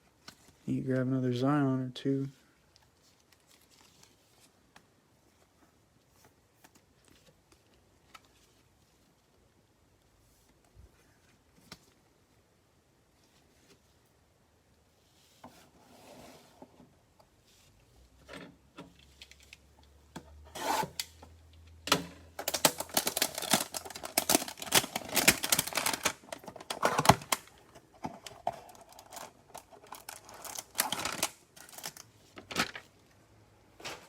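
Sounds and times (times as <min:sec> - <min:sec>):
cards clicking and rustling: 0:22.4 - 0:32.9.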